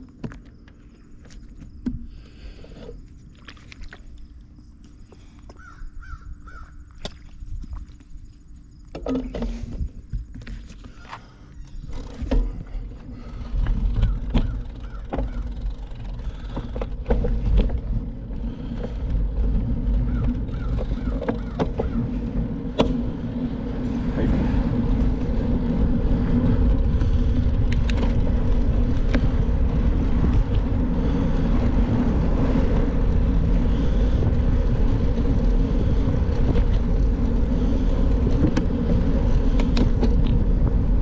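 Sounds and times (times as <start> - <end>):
bird calls: 5.1 - 7.1, 10.8 - 12.2, 14.0 - 15.6, 20.0 - 22.1
wind buffeting microphone: 9.4 - 41.0.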